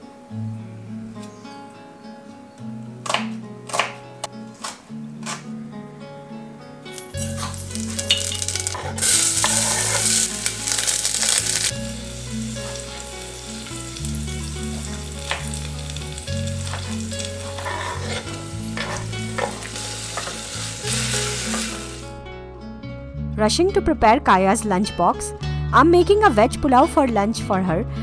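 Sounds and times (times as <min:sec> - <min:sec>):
vegetables sizzling in hot oil: 0:06.9 - 0:22.1.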